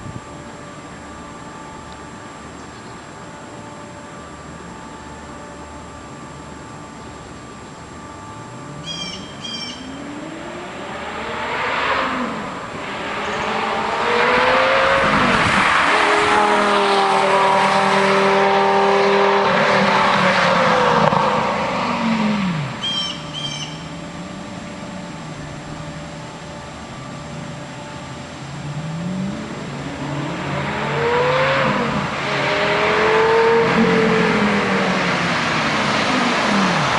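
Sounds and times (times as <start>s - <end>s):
birds chirping: 8.8s - 10.3s, 22.8s - 24.1s
sports car accelerating past: 9.8s - 25.2s, 28.5s - 36.9s.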